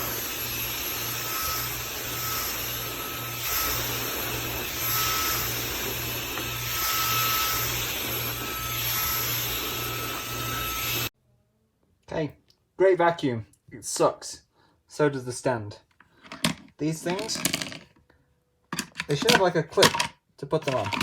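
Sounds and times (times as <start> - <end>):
handheld vacuum whirring: 0.0 - 11.1, 16.3 - 17.8, 20.6 - 21.0.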